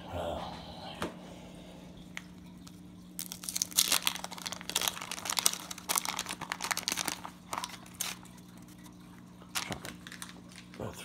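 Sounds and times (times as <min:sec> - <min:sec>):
wrapper crinkling and tearing: 0:02.6 - 0:10.9.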